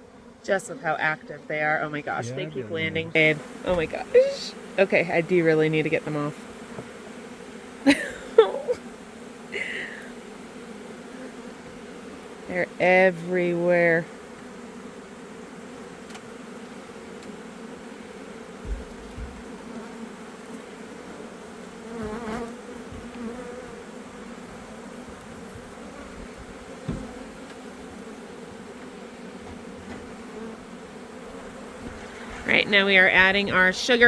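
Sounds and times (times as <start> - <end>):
honeybees humming: 0.0 - 34.0
short low bumps: 3.0 - 4.3, 18.6 - 19.6.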